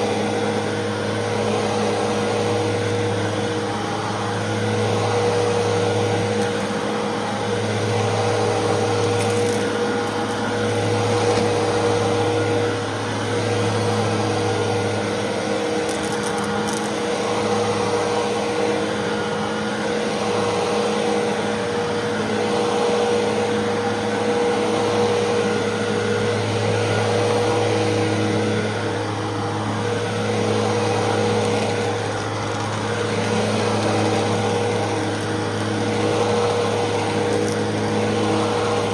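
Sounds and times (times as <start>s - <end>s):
vacuum cleaner motor whine: 0.0s - 38.9s.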